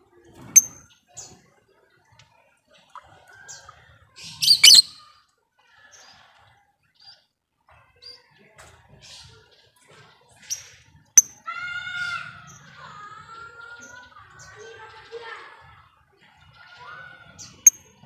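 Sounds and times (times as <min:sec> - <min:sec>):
lovebird chirping: 0:04.4 - 0:05.0
wavering bird call: 0:04.4 - 0:05.0.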